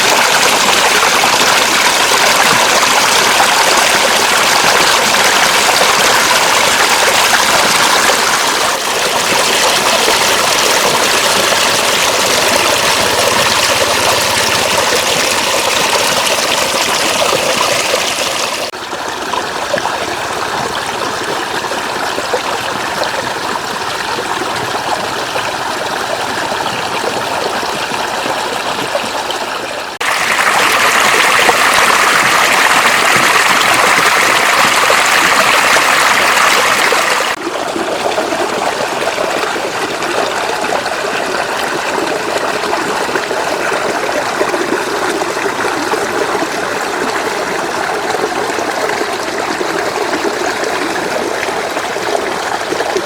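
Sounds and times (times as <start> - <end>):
floodwater trickling: 0.0 - 53.0.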